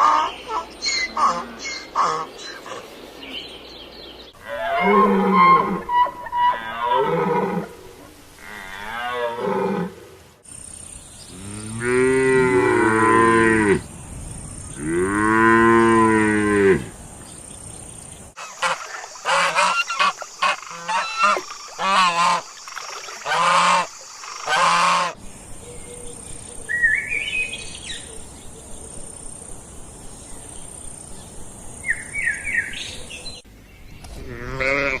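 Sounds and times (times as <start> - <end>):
geese honking: 0.0 - 2.9, 4.5 - 7.7, 18.4 - 22.4, 23.2 - 25.2
cow mooing: 11.4 - 13.8, 14.8 - 16.9.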